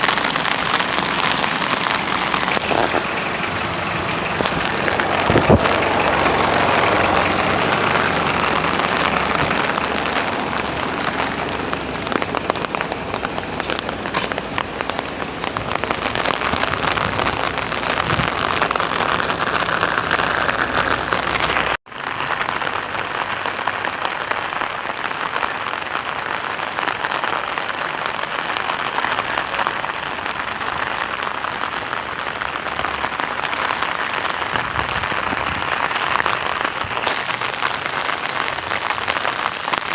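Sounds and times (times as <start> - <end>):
rain pattering: 0.0 - 39.9
low rumble: 0.2 - 21.8.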